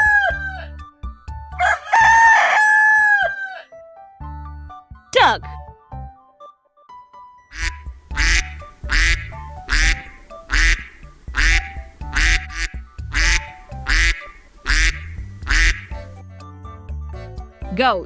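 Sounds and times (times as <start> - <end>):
light background music: 0.0 - 18.0
duck quacking: 7.5 - 16.1.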